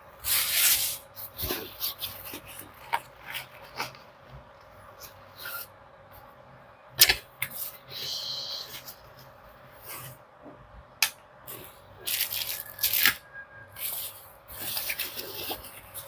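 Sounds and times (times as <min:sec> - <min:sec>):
rustling and clattering belongings: 0:00.3 - 0:05.7, 0:13.8 - 0:16.0.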